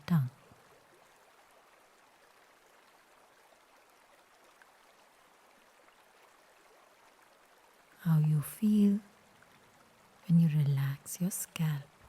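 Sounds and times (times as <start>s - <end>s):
person speaking: 0.0s - 0.4s
faint room tone hiss: 0.0s - 12.0s.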